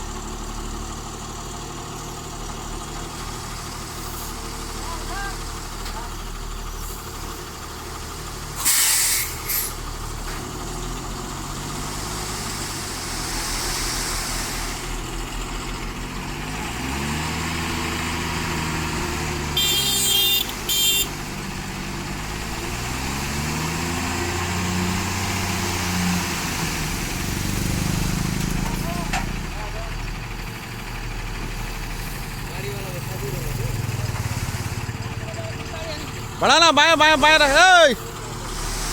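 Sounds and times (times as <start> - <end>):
truck diesel engine revving: 0.0 - 38.9
air brake hisses: 8.6 - 9.8, 13.1 - 15.0, 38.4 - 38.9.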